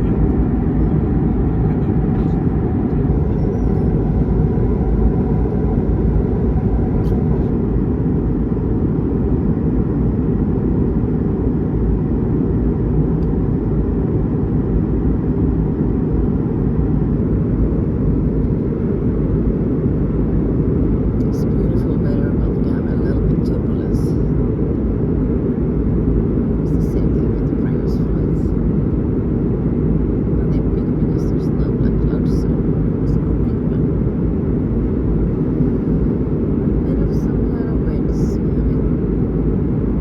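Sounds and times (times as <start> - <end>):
airplane cabin engine rumble: 0.0 - 40.0.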